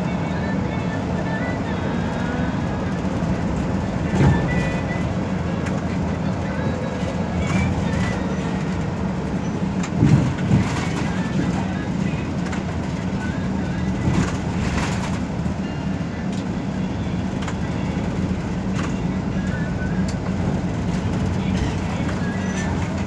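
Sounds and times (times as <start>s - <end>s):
bus engine and road rumble: 0.0s - 23.0s
cabin bumps and rattles: 7.5s - 11.7s.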